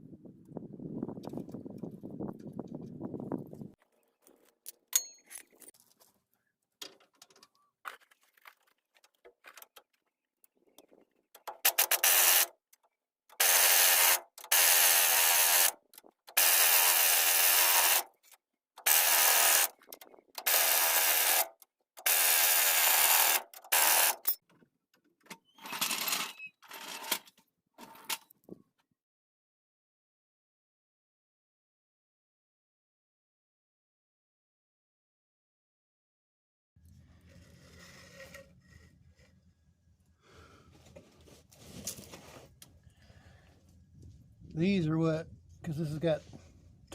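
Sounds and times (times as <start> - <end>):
power tool bursts: 11.6 - 12.5, 13.3 - 18.1, 18.8 - 19.8, 20.4 - 24.3.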